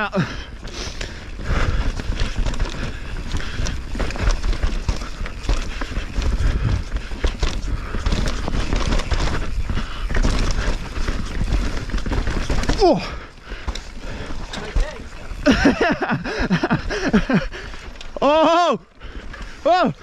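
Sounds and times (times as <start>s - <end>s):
bike clicks and rattles: 0.0s - 20.0s
tyres on dirt: 0.0s - 20.0s
wind rumbling on microphone: 1.3s - 12.9s.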